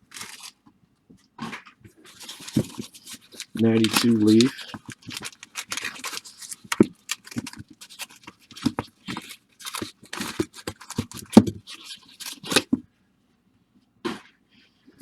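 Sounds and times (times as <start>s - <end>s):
card wrappers crinkling and ripping: 0.0s - 0.5s, 2.0s - 12.8s.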